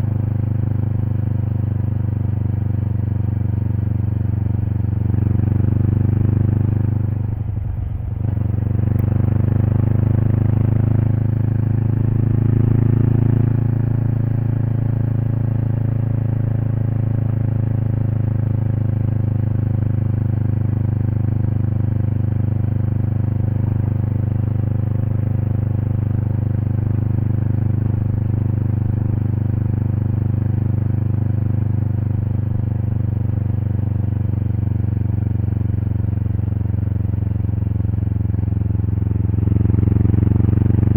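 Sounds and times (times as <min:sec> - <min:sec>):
motorcycle exhaust note: 0:00.0 - 0:40.9.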